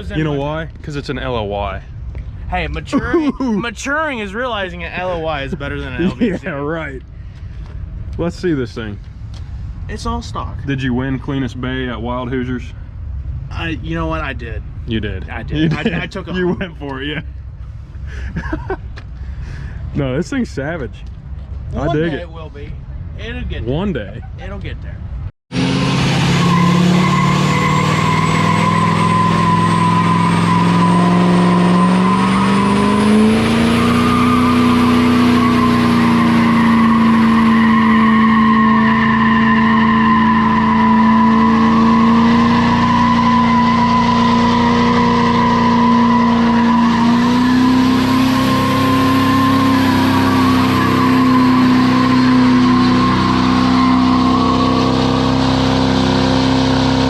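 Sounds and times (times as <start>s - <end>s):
diesel truck engine revving high: 25.5s - 57.0s
tires spinning and squealing: 25.6s - 57.0s.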